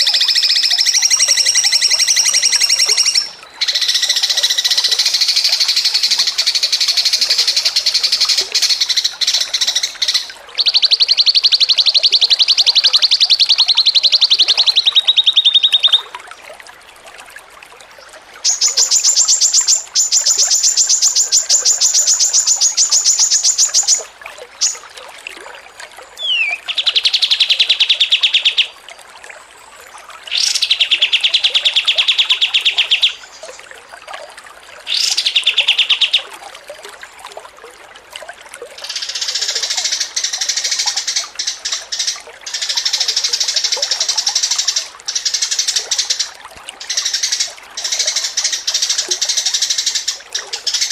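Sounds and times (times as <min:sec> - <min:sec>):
songbird chattering trills: 0:00.0 - 0:16.0, 0:26.2 - 0:28.7.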